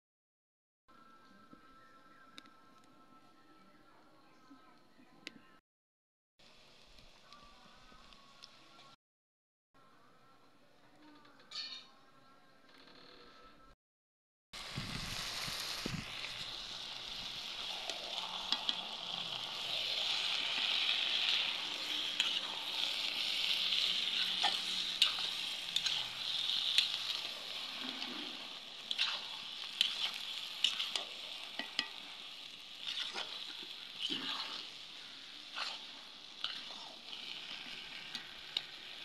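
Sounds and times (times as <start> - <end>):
greens sizzling in hot oil: 14.6 - 39.0
metal spatula scraping a pan: 17.6 - 38.7.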